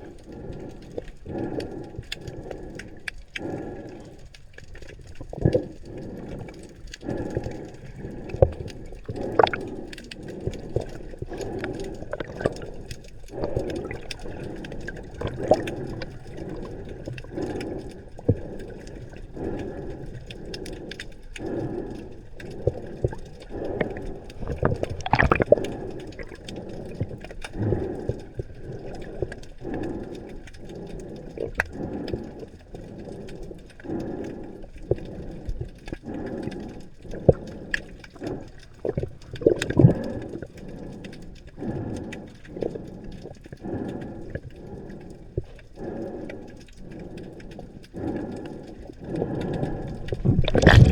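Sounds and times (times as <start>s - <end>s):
water gurgling and bubbling: 4.9s - 20.5s, 21.4s - 30.0s, 37.1s - 40.8s, 48.0s - 50.9s.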